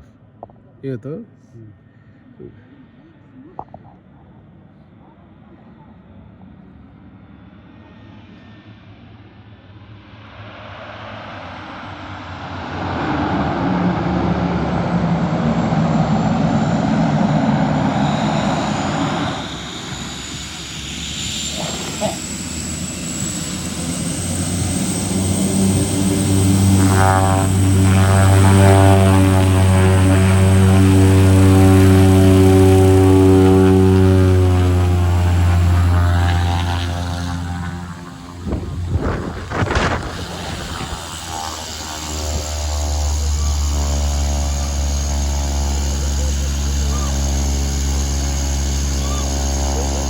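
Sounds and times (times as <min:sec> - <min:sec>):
propeller aircraft engine: 0:01.8 - 0:50.0.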